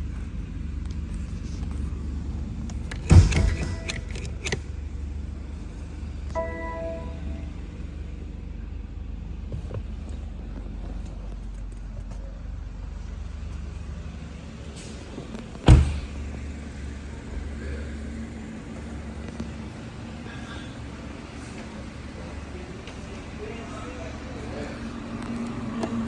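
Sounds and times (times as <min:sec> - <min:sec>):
car engine rumbling: 0:00.0 - 0:26.0
loud sharp thump: 0:03.1 - 0:03.8.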